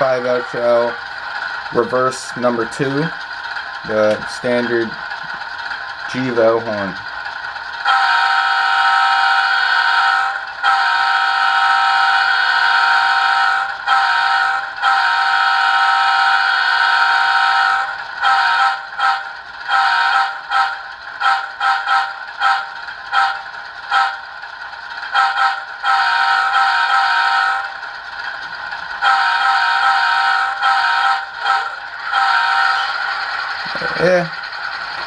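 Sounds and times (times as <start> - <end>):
model locomotive air horn: 7.8 - 24.3, 25.1 - 27.8, 29.0 - 34.0.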